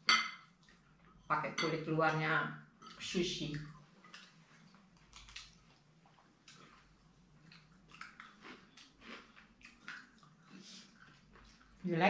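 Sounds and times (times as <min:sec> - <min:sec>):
faint chewing: 0:02.9 - 0:12.0.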